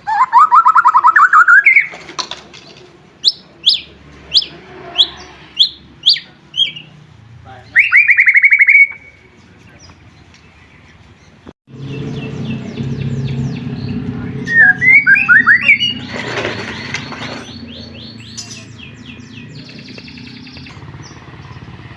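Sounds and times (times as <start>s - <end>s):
bird singing trills and whistles: 0.0s - 2.0s, 3.2s - 7.0s, 7.6s - 10.2s, 11.8s - 21.9s.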